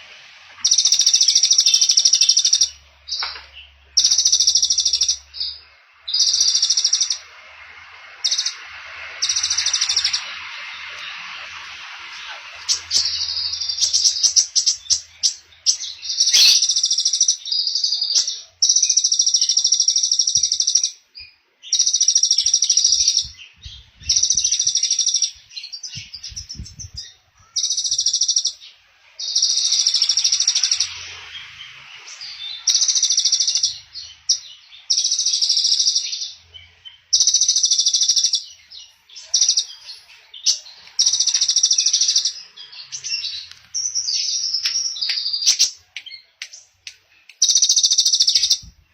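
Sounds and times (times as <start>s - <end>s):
songbird high rapid trill: 4.0s - 7.4s, 8.2s - 17.4s.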